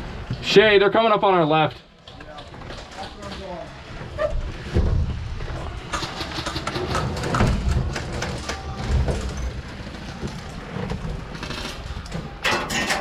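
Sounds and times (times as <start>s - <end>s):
sharp clicks and knocks: 5.8s - 9.3s.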